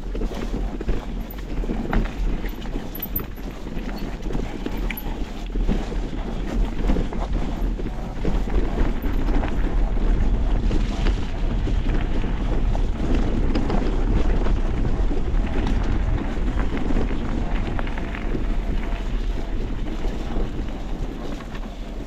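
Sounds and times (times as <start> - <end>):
small knocks and clatter: 0.0 - 9.6
wind buffeting microphone: 0.0 - 22.0.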